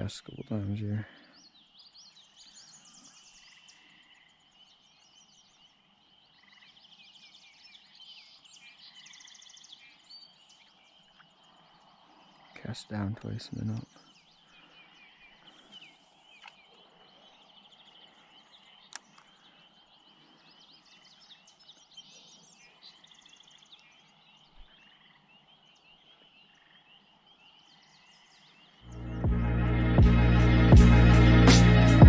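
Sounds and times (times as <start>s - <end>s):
chirping and trilling animal calls: 8.3s - 28.9s
faint clicks: 18.6s - 19.4s
music: 28.9s - 32.0s.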